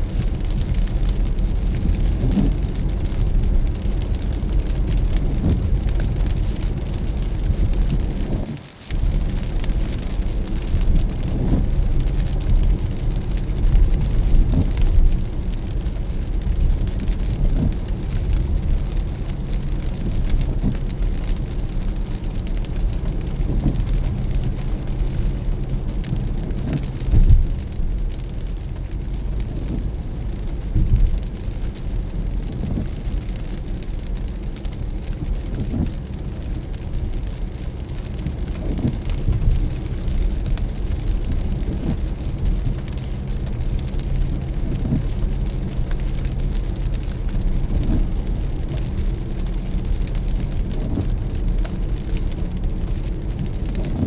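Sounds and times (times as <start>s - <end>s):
hiss of rain and spray: 0.0s - 54.0s
low rumble of road and engine: 0.0s - 54.0s.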